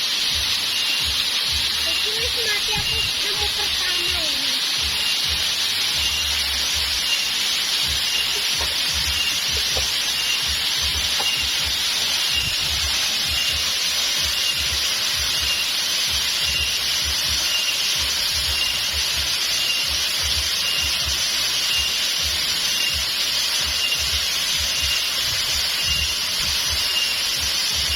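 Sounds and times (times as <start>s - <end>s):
water rushing: 0.0s - 27.9s
faint high-pitched chirp: 5.9s - 22.0s, 22.6s - 27.9s.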